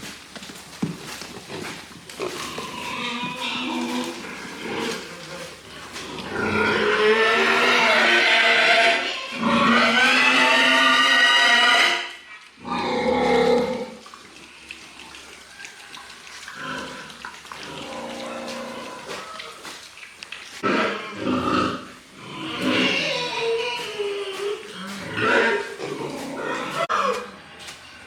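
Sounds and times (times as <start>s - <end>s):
pigs squealing: 2.2s - 14.0s, 20.6s - 28.0s.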